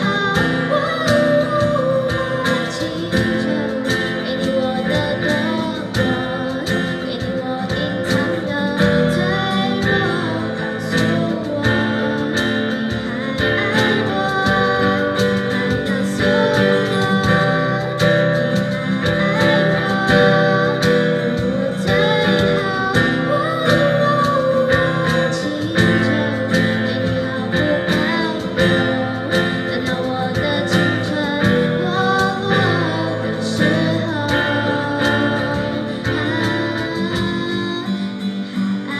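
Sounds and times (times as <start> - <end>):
acoustic guitars strumming: 0.0 - 38.9
person singing: 0.0 - 38.9.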